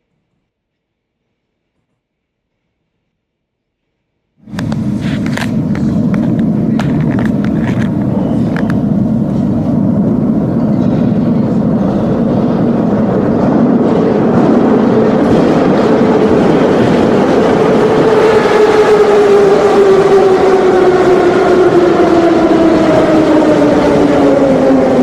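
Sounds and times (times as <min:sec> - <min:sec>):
metro train rumbling: 0:04.4 - 0:25.0
train whine: 0:04.4 - 0:25.0.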